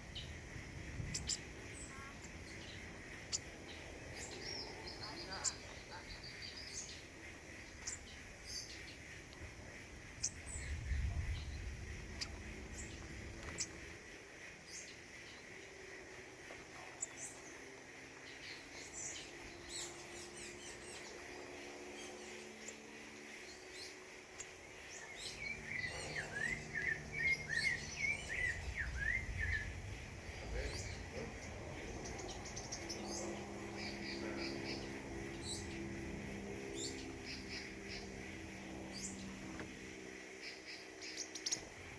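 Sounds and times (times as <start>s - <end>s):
songbirds chirping: 0.0s - 41.9s
low rumble: 9.4s - 14.1s, 25.3s - 39.8s.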